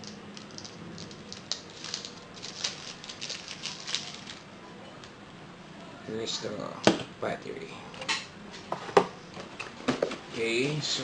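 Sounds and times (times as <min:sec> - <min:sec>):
packaging crinkling and rustling: 0:00.0 - 0:04.5.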